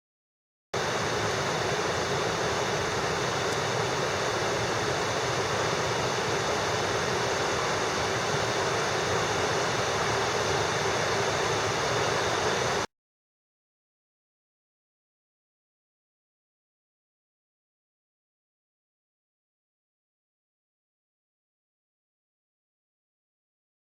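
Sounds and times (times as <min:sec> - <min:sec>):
stream water rushing: 0:00.8 - 0:12.9.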